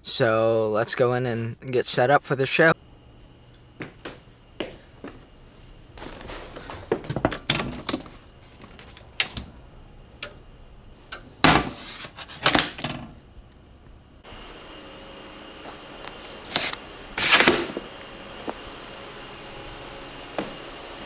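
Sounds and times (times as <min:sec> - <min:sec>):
irregular knocks and rattles: 0:05.9 - 0:14.3.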